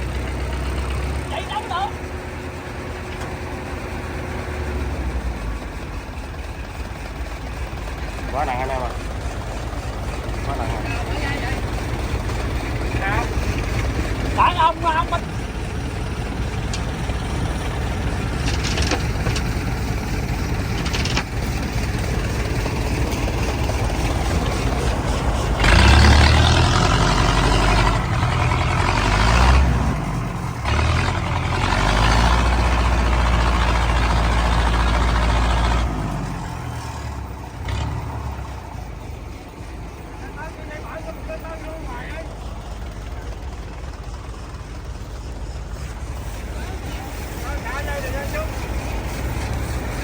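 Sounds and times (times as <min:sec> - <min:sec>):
diesel engine revving under load: 0:00.0 - 0:50.0.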